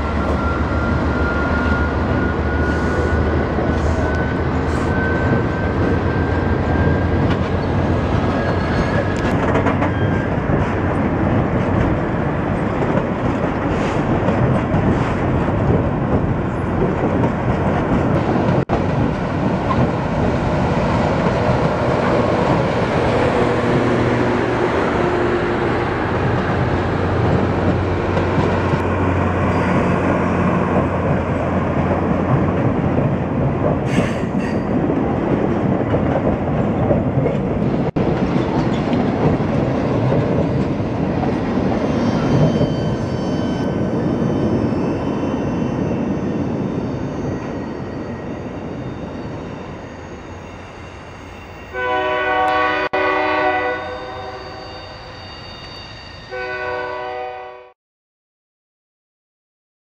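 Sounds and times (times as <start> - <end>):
train wheels rolling on rails: 0.0 - 52.7
train horn chord: 51.7 - 54.9, 56.3 - 57.8.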